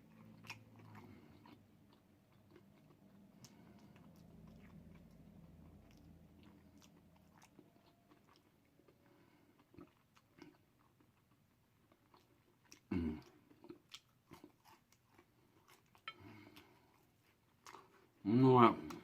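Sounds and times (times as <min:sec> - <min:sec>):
chewing food: 0:00.0 - 0:18.2.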